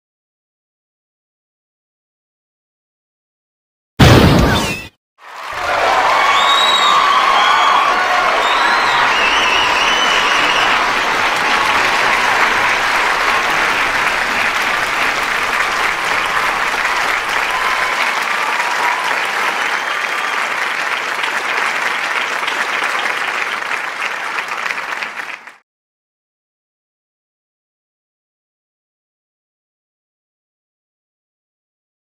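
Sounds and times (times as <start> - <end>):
whistles and cheers: 4.4 - 25.6
audience applauding: 5.2 - 25.6.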